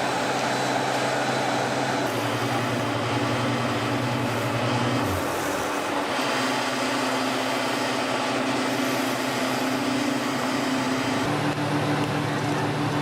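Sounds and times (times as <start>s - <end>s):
machine engine droning: 0.0s - 13.0s.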